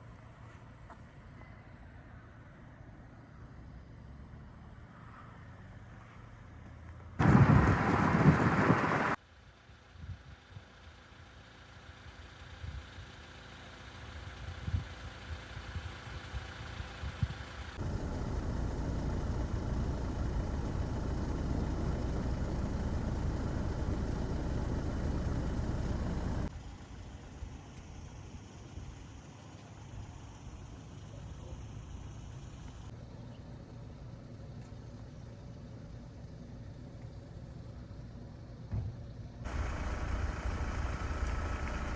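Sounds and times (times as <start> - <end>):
heavy truck engine: 7.2 - 9.2, 17.6 - 26.5, 39.5 - 41.9
road noise: 7.2 - 9.2, 17.6 - 26.5, 39.5 - 41.9.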